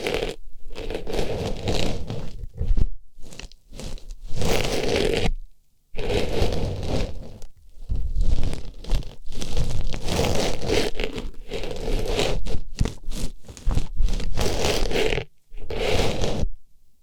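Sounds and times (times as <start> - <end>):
scratchy rustling and crunching: 0.0 - 16.6.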